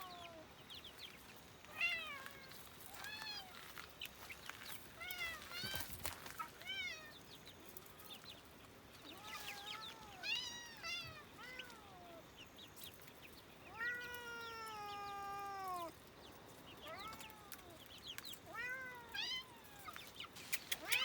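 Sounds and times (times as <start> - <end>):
cats meowing: 0.0 - 0.5, 1.6 - 3.7, 4.9 - 7.2, 9.0 - 12.3, 13.6 - 16.1, 16.7 - 21.0.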